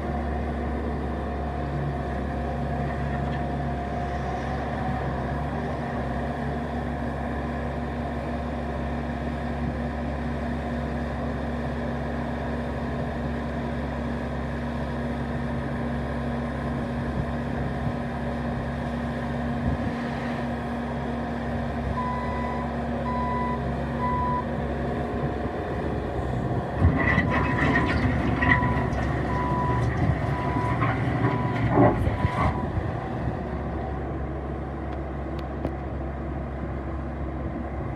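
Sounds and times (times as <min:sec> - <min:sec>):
diesel engine running: 0:00.0 - 0:37.9
reversing alarm beeps: 0:22.0 - 0:24.5.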